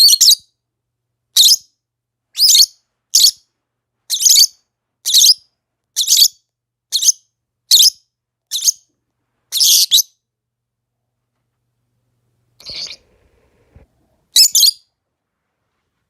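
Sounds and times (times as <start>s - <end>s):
lovebird chirping: 0.0s - 0.5s, 1.4s - 3.5s, 4.1s - 8.9s, 9.5s - 10.2s, 12.6s - 13.1s, 14.3s - 14.9s.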